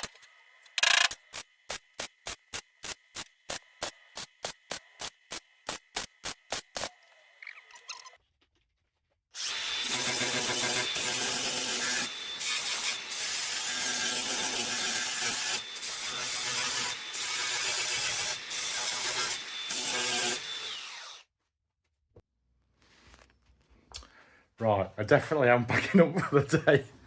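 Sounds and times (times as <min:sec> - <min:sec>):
electric grinder grinding steel: 0:09.4 - 0:21.3.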